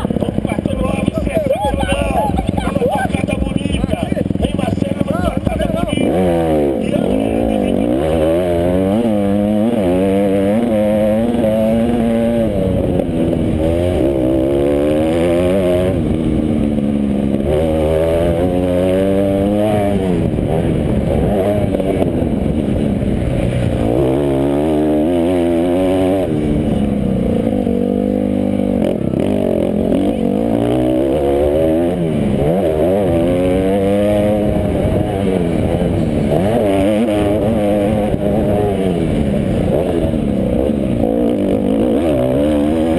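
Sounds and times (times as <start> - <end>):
motocross bike engines revving: 0.0 - 42.9.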